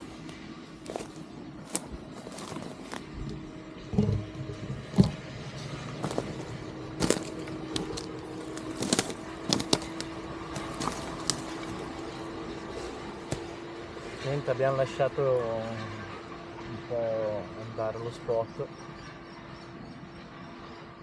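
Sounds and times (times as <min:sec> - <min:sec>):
footsteps crunching dry vegetation: 0:00.0 - 0:03.4, 0:05.8 - 0:14.2
distant machine engine hum: 0:00.0 - 0:21.0.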